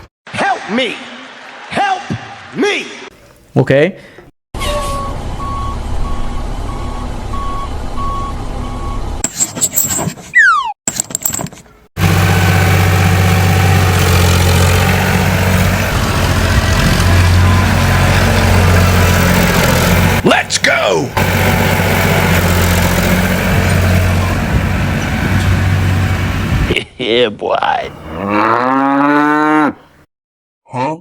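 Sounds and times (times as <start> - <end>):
vehicle engine running: 12.0 - 26.7.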